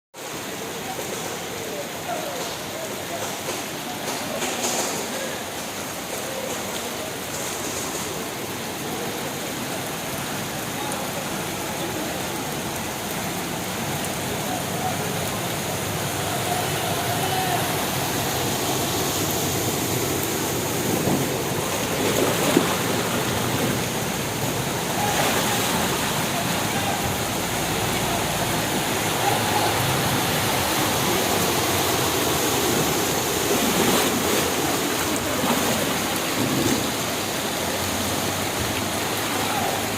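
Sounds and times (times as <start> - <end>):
floodwater rushing: 0.2 - 39.9
loud water hit: 16.3 - 38.9.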